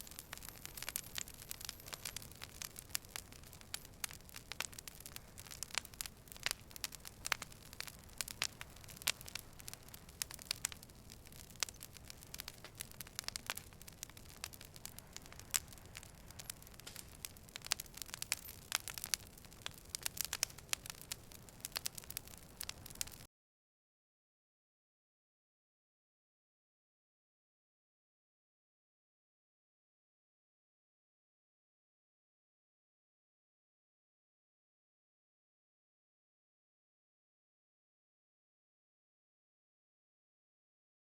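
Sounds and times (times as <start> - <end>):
campfire crackling and popping: 0.0 - 23.3
low hiss of burning: 0.0 - 23.3.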